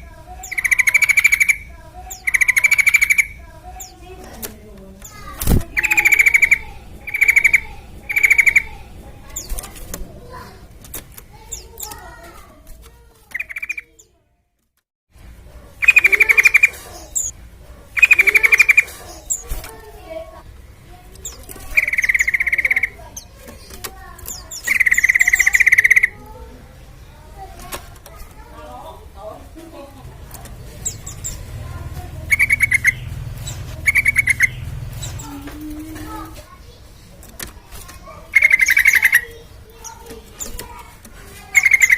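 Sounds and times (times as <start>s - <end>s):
bird chirps and warbling: 0.0s - 12.4s, 13.2s - 14.2s, 15.7s - 29.1s, 30.0s - 41.9s
bird rattling trill: 0.3s - 12.2s, 15.8s - 17.3s, 17.9s - 20.4s, 21.0s - 26.3s, 30.1s - 41.9s
thin high chirps: 5.0s - 9.7s, 21.2s - 26.2s, 32.2s - 35.4s
bulbul chirping bursts: 32.2s - 35.4s.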